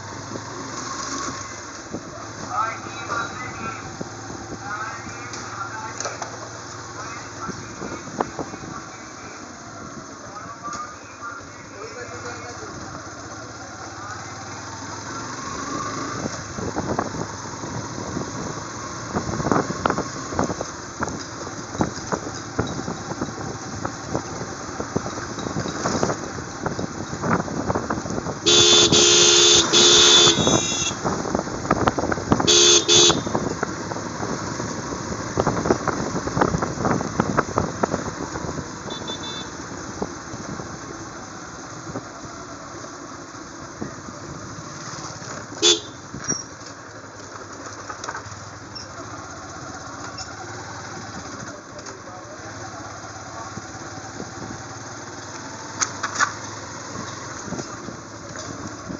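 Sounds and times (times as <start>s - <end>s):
motorcycle engine: 0.0s - 10.8s, 11.8s - 58.9s
vehicle horn honking: 28.4s - 31.0s, 32.4s - 33.4s, 38.8s - 39.6s, 45.6s - 46.1s.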